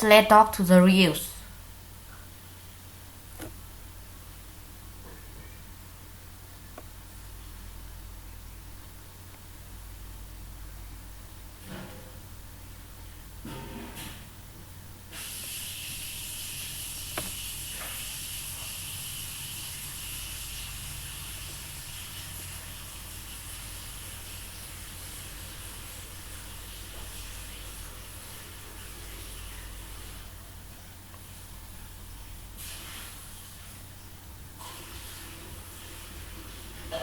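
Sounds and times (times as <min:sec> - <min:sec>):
steady hiss: 0:15.0 - 0:37.0.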